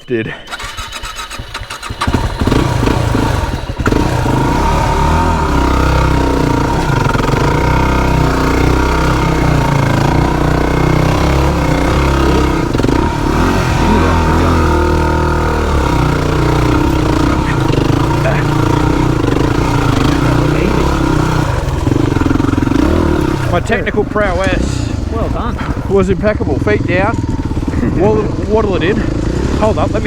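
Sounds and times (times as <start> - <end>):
motorbike engine revving: 0.4 - 30.0.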